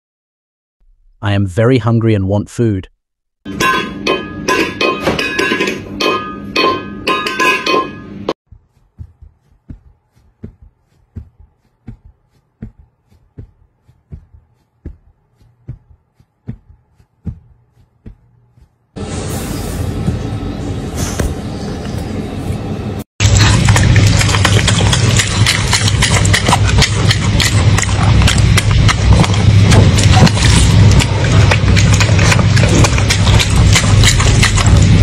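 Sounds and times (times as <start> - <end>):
metal bowl clanking on floor: 3.5 - 8.1
loud steady noise: 22.2 - 35.0.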